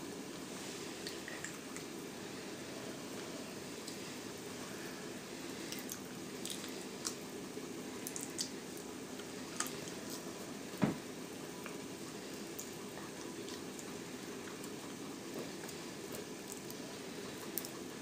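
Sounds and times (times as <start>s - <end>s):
steady low background noise: 0.0s - 18.0s
gnawing and chewing meat: 5.6s - 10.7s, 11.4s - 18.0s.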